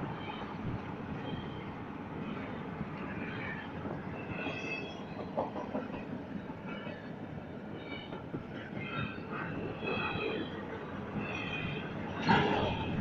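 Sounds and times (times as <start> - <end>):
freight train wheels rumbling: 0.0 - 13.0
high wheel squeals: 8.8 - 13.0.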